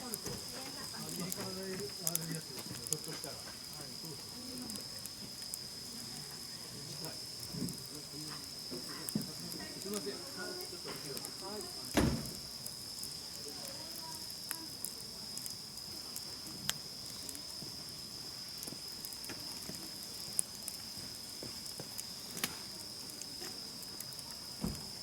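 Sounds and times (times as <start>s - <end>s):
campfire crackling: 0.0s - 25.0s
crickets trilling: 0.0s - 25.0s
sharp fire pops: 7.3s - 17.5s, 18.6s - 25.0s.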